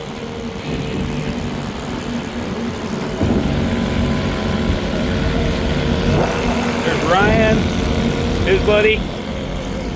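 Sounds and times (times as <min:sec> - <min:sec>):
outboard motor running: 0:00.0 - 0:09.9.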